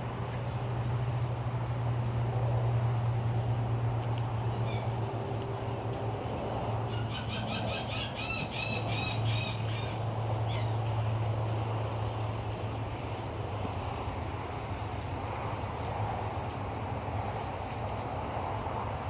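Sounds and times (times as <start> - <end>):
steady low hum: 0.0 - 19.0
birds squawking: 4.6 - 4.9, 6.9 - 10.8.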